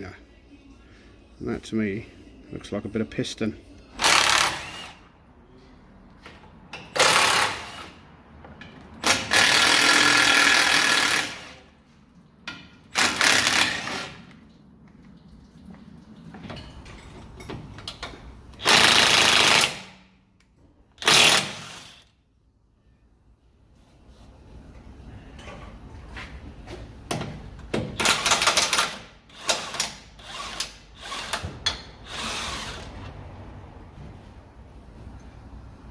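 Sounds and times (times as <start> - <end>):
impact wrench hammering: 9.0 - 11.4, 12.5 - 14.2.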